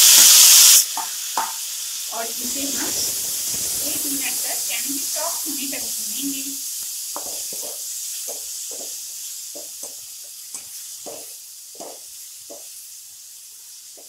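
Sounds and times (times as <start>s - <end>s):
vegetables sizzling in hot oil: 0.0s - 14.0s
spoon scraping and knocking pan: 7.2s - 12.7s.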